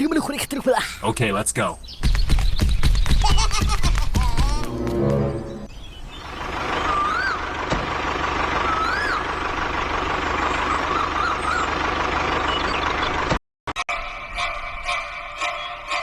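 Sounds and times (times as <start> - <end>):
rising and falling whistles: 6.8 - 7.5, 8.6 - 9.3.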